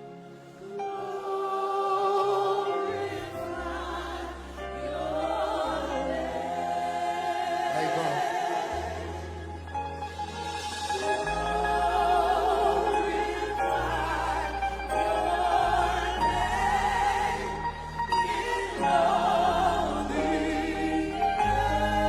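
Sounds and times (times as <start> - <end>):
gospel singers: 0.0 - 22.0
deep bass notes: 8.7 - 22.0.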